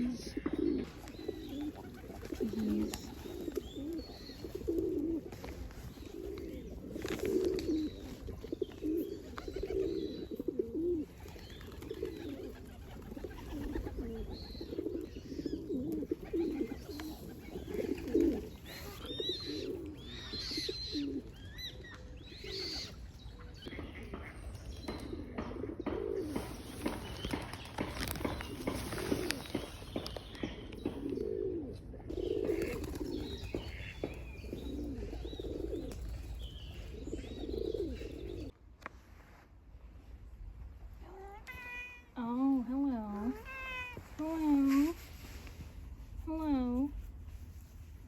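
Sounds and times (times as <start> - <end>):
pigeons cooing: 0.0 - 23.2, 24.9 - 38.6
small birds chirping: 0.0 - 31.5, 32.1 - 38.6.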